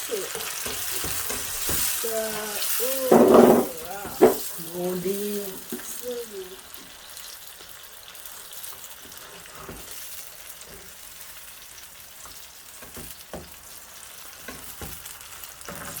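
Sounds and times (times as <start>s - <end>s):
onions sizzling in oil: 0.0s - 16.0s
spoon knocking against pot: 3.0s - 4.5s.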